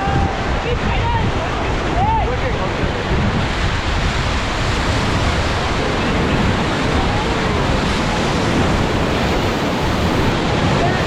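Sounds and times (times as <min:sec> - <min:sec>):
faint shouting voices: 0:00.0 - 0:02.6
whitewater rushing: 0:00.0 - 0:11.0
wind buffeting microphone: 0:00.0 - 0:11.0.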